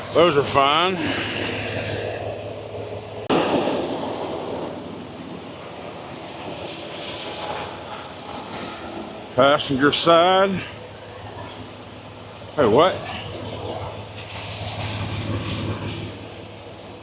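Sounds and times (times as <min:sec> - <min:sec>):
sudden rushing noise: 0:00.0 - 0:07.5
diesel truck engine idling: 0:00.0 - 0:17.0.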